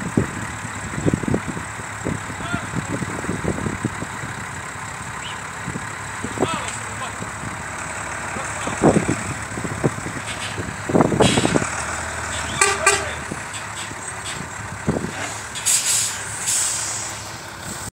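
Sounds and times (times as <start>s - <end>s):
heavy engines rumbling: 0.0s - 17.9s
short horn toot: 12.4s - 13.2s
burst of hiss: 15.2s - 17.4s.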